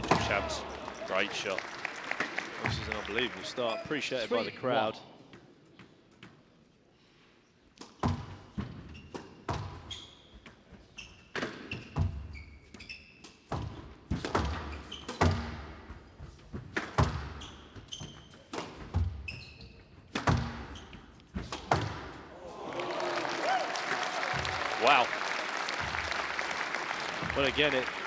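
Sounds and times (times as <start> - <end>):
shoes squeaking on court floor: 7.8 - 22.0
squash ball hitting rackets and walls: 7.8 - 22.3.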